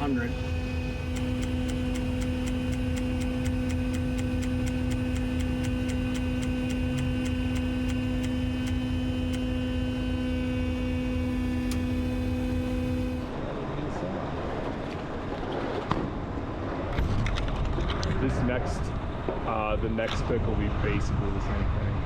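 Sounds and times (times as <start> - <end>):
steady even-pitched hum: 0.0 - 22.0
regular ticking: 1.1 - 9.6
low engine rumble: 17.8 - 22.0.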